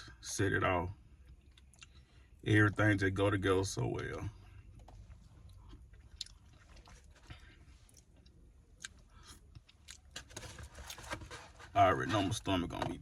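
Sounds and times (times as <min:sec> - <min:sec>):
chewing food: 0:04.7 - 0:11.0.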